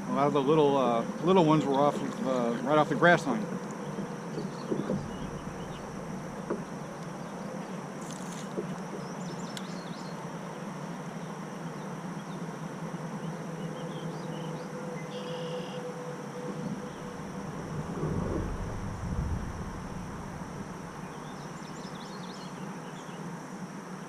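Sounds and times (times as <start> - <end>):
high insect drone: 0.0 - 24.0
birds chirping: 1.4 - 7.8, 16.4 - 23.2.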